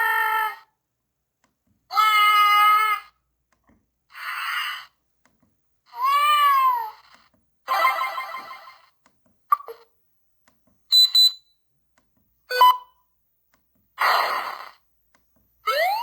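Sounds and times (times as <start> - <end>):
brief electronic chirp: 10.9 - 11.5
high beep: 10.9 - 11.5.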